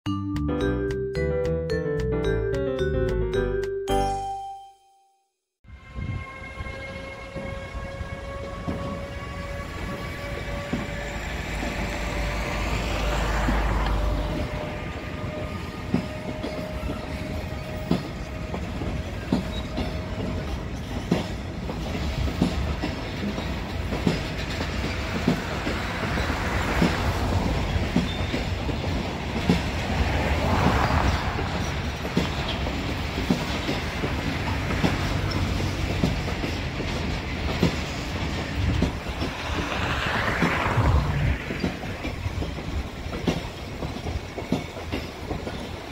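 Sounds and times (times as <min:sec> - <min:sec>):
locomotive whine: 0:05.7 - 0:45.9
wheels clicking over rail joints: 0:10.4 - 0:40.8, 0:41.4 - 0:45.9
hiss from passing wagons: 0:21.3 - 0:44.4.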